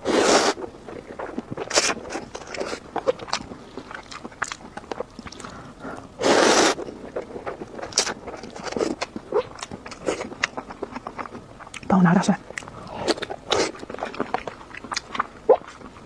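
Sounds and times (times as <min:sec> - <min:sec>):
slurp of noodles: 0:00.0 - 0:00.6, 0:06.2 - 0:06.8
chewing smacks: 0:00.5 - 0:06.0, 0:06.7 - 0:11.9, 0:12.5 - 0:16.0.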